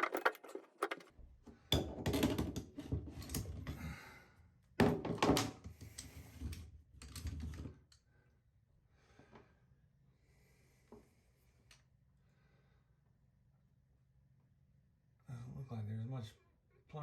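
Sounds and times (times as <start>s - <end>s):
tools clicking and scraping: 0.0s - 1.1s.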